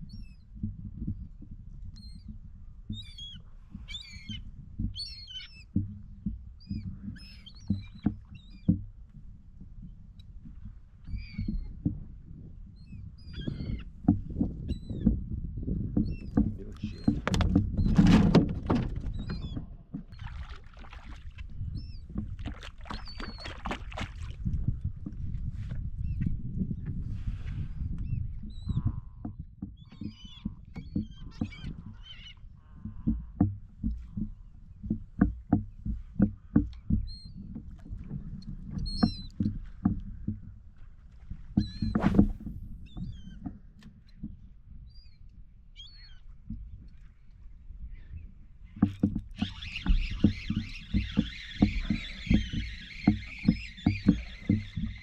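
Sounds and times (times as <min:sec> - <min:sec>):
knocks and thumps on a kayak: 0:00.1 - 0:45.0, 0:46.2 - 0:55.0
birds calling: 0:02.0 - 0:05.9, 0:06.6 - 0:08.8, 0:11.0 - 0:11.8, 0:12.8 - 0:15.1, 0:16.0 - 0:22.2, 0:22.8 - 0:24.3, 0:28.0 - 0:40.4, 0:47.9 - 0:55.0
knocks on kayak hull: 0:15.9 - 0:21.2, 0:32.8 - 0:40.5
water splashing: 0:20.0 - 0:24.8, 0:41.2 - 0:42.8, 0:48.8 - 0:55.0
short high bird calls: 0:49.4 - 0:55.0.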